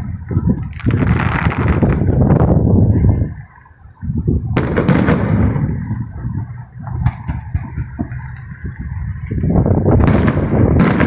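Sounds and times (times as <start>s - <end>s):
firework shells bursting: 0.0s - 2.6s, 4.5s - 11.0s
low rumble: 0.0s - 11.0s.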